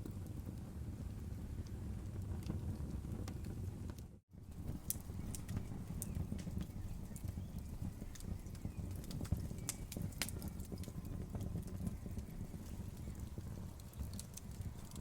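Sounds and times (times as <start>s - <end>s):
burning wood popping and snapping: 0.0s - 15.0s
fire low rumble: 0.0s - 15.0s
loud fire cracks: 4.4s - 15.0s.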